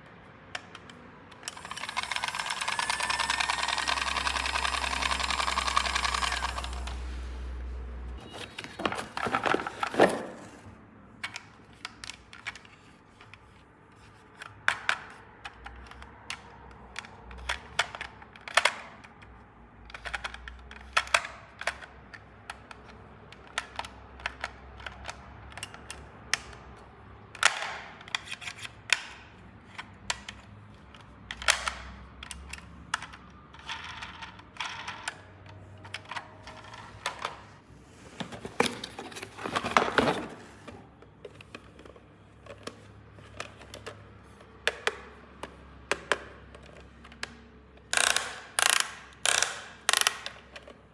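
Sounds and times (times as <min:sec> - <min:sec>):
plastic toy pieces clicking: 0:14.3 - 0:37.2, 0:42.5 - 0:50.8.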